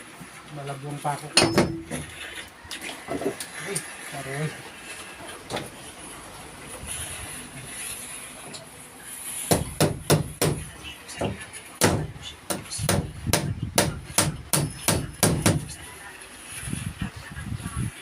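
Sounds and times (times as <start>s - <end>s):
hammer driving nail into wood: 9.5s - 10.6s.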